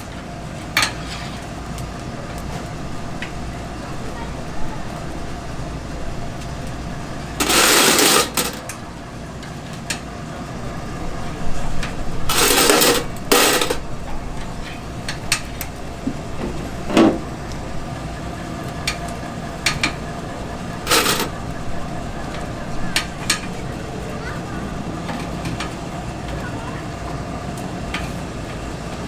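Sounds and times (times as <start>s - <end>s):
steady low hum: 0.0s - 29.0s
clicks and clinks: 7.4s - 8.8s, 12.3s - 13.8s, 20.9s - 21.4s.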